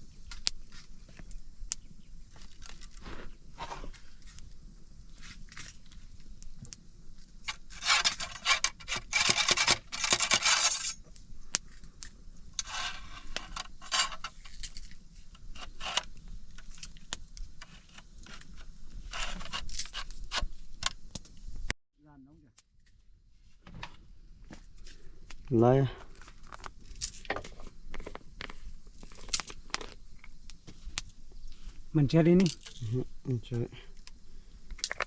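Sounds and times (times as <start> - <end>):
small hard objects rattling: 32.4 - 33.0.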